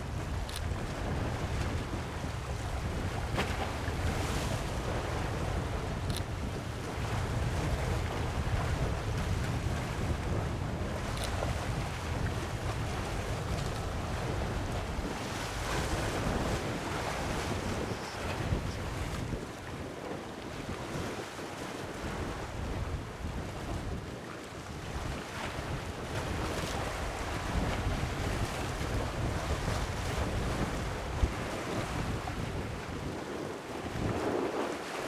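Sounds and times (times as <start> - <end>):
wind buffeting microphone: 0.0 - 19.9, 24.8 - 35.0
sea waves washing in: 1.6 - 19.5.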